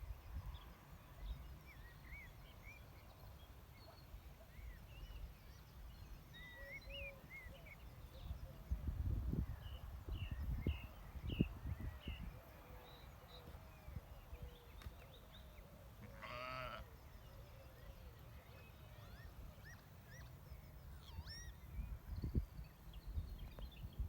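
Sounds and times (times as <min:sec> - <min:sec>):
lamb bleating: 0:16.1 - 0:16.8.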